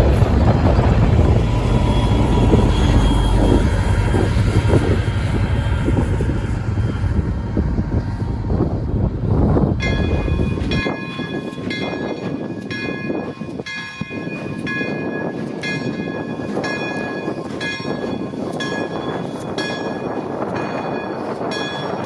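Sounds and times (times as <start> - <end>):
locomotive bell ringing: 0.0 - 6.8, 9.8 - 22.0
low rumble: 0.0 - 11.4
passing train noise: 0.0 - 22.0.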